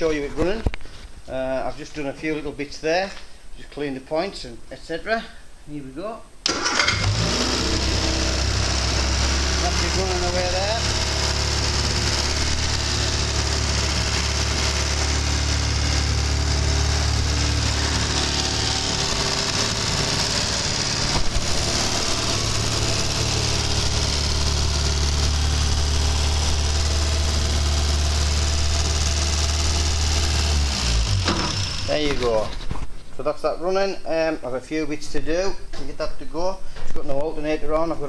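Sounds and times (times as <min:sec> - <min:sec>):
car engine idling: 0:06.5 - 0:32.5.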